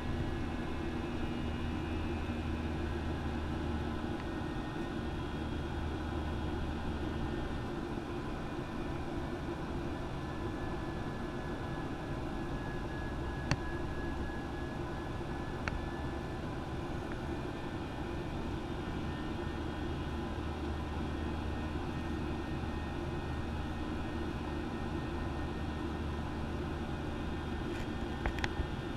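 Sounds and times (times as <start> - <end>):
airliner engine and airflow hum: 0.0 - 28.9.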